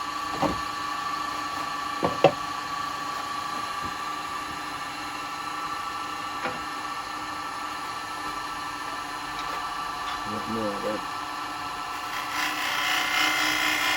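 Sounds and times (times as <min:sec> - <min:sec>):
wood lathe motor whine: 0:00.0 - 0:13.9
tools knocking: 0:00.3 - 0:00.7, 0:02.0 - 0:02.4, 0:03.5 - 0:04.6, 0:06.4 - 0:06.7.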